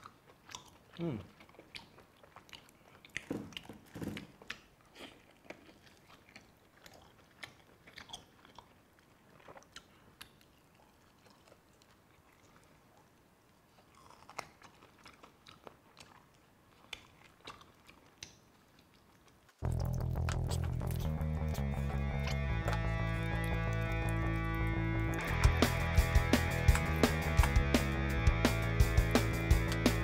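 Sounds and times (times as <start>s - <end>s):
person chewing: 0.0s - 30.0s.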